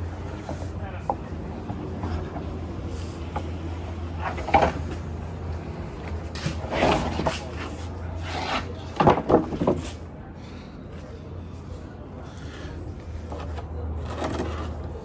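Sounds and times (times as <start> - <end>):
wooden knocks and clatters: 3.2 - 5.1, 8.9 - 9.9.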